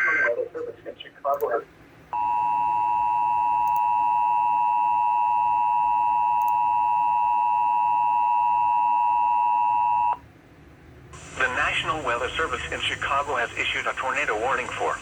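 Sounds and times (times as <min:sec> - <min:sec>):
two-tone alarm tone: 0:02.2 - 0:10.2.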